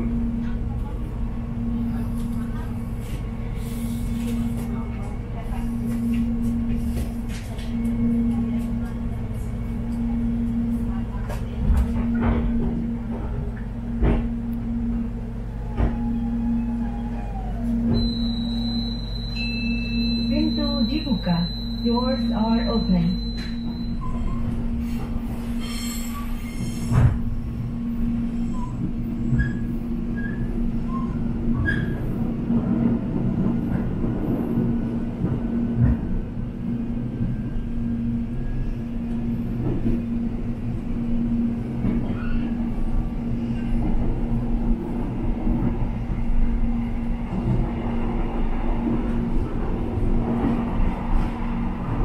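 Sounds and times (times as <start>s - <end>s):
electric train rumbling: 0.0s - 52.0s.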